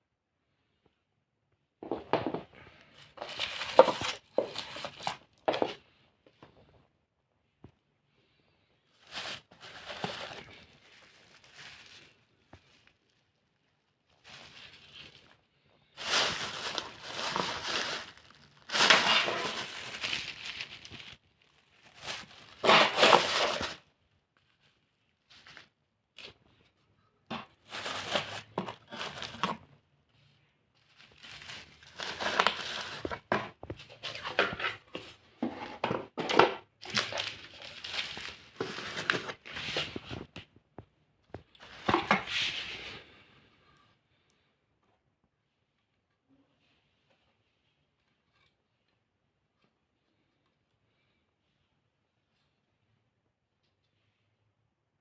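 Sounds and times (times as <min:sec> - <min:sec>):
crinkling and crumpling: 0:01.8 - 0:06.8, 0:08.9 - 0:43.1.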